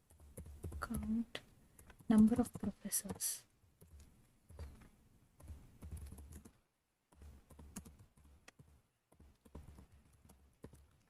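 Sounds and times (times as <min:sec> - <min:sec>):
faint keyboard typing: 0:00.0 - 0:11.0.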